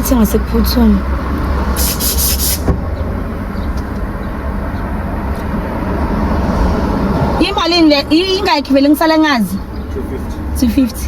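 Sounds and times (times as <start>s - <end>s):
car engine rumbling: 0.0s - 11.0s
short bursts of hiss: 1.8s - 2.7s.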